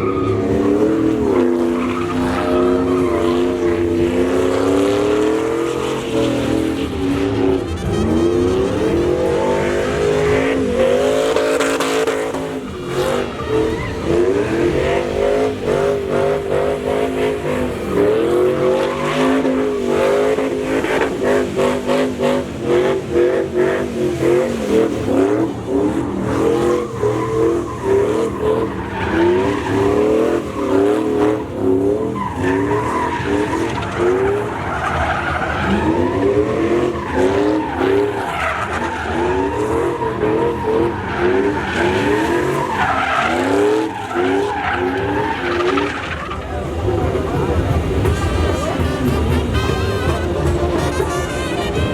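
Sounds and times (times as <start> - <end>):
truck engine revving: 0.0 - 51.9
tyres spinning and squealing: 0.0 - 51.9.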